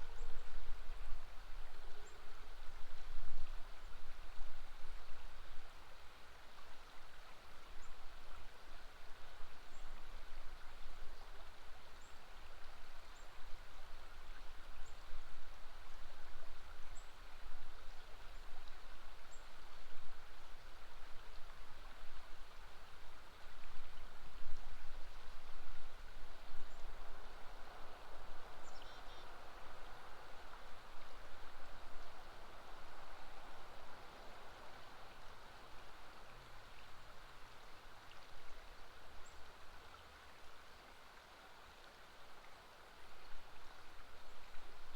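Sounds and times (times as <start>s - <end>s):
river water rushing: 25.1s - 44.9s.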